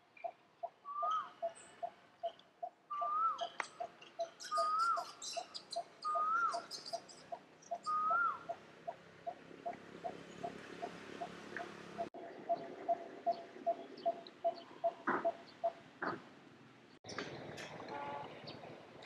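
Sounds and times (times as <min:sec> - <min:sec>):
high bird chirps: 0:00.9 - 0:08.6
bird whistled note: 0:02.9 - 0:03.5.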